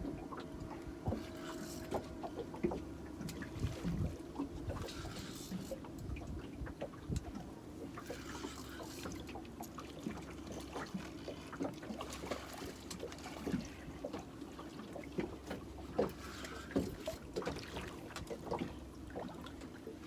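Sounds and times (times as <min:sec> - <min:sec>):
water trickling and sloshing: 0:00.0 - 0:20.0.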